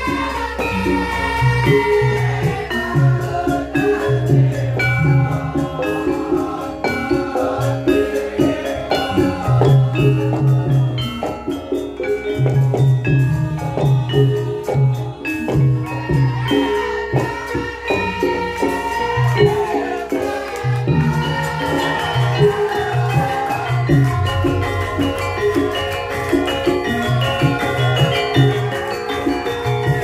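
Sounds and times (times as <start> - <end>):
gamelan metallophones and gongs: 0.0 - 30.0
person singing: 13.3 - 29.6.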